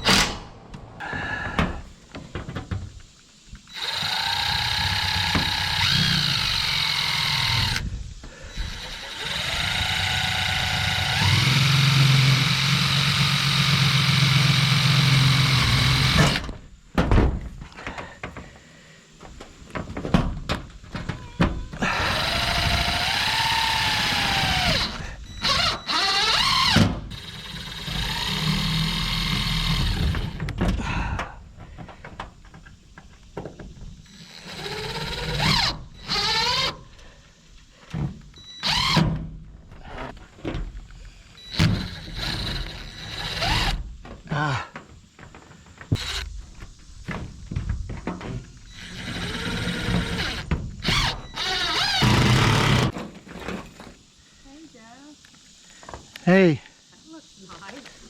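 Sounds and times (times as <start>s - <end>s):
power tool motor running: 3.7s - 7.9s, 8.5s - 16.4s, 21.8s - 30.4s, 34.1s - 36.7s, 38.6s - 39.0s, 41.4s - 43.8s, 46.0s - 46.4s, 48.7s - 53.0s.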